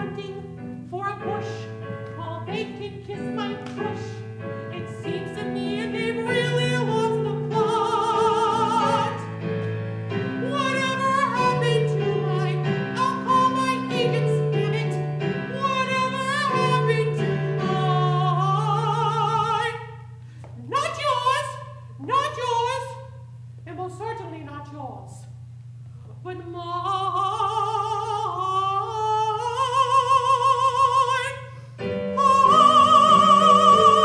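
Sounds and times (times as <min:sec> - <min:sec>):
piano: 0:00.0 - 0:22.4, 0:26.6 - 0:34.0
person singing operatically: 0:10.4 - 0:19.8, 0:32.2 - 0:34.0.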